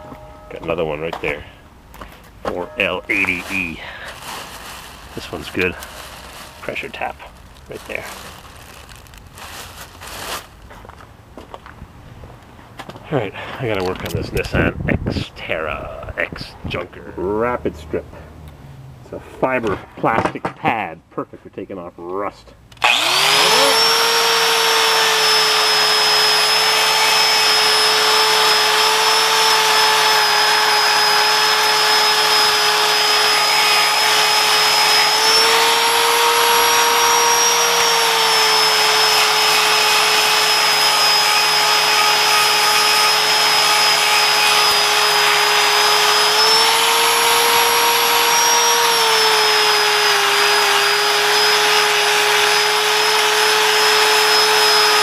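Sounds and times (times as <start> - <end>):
power tool grinding rust: 2.5 - 10.5, 22.8 - 55.0.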